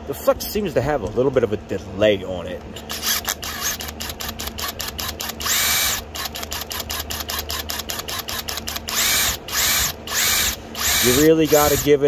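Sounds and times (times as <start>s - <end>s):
impact driver motor whining: 2.8s - 12.0s.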